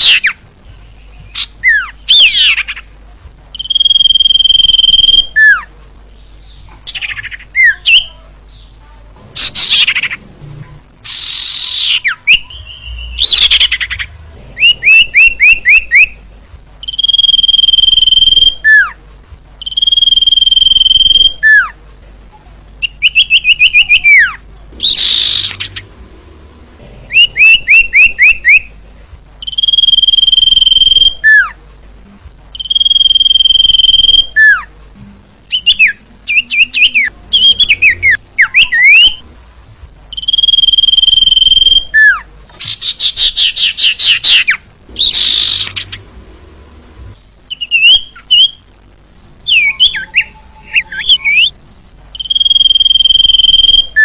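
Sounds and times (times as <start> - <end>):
bird singing whistled notes: 0.0 - 2.8, 3.5 - 5.7, 11.0 - 16.2, 16.8 - 19.0, 19.6 - 21.7, 22.8 - 25.8, 27.1 - 28.7, 29.4 - 31.6, 32.5 - 34.7, 35.5 - 39.2, 40.1 - 46.0, 47.2 - 48.6, 49.5 - 54.0
harsh rasping bird notes: 40.2 - 48.6.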